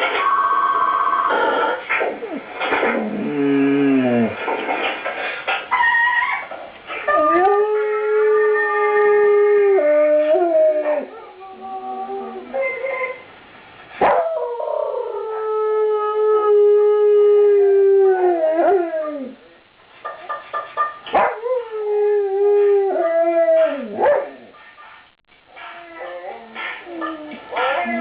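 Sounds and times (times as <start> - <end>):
dog howling: 2.2 - 4.4, 7.1 - 13.2.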